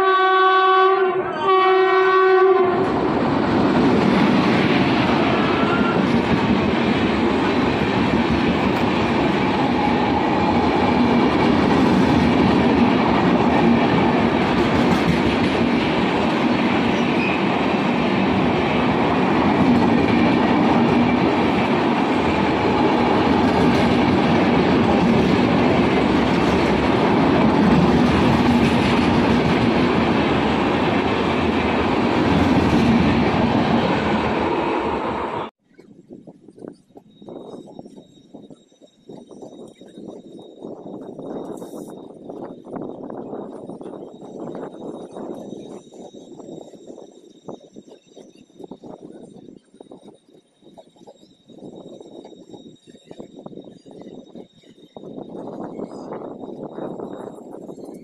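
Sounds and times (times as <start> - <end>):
locomotive horn: 0.0 - 3.0, 5.2 - 6.2
train passing at speed: 0.0 - 35.6.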